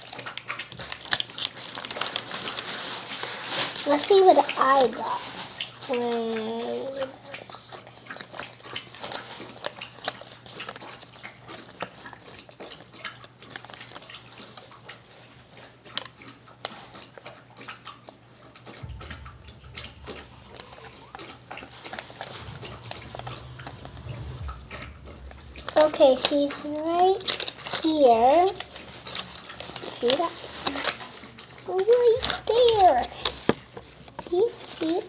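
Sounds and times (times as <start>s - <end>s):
low hum: 18.8s - 29.0s.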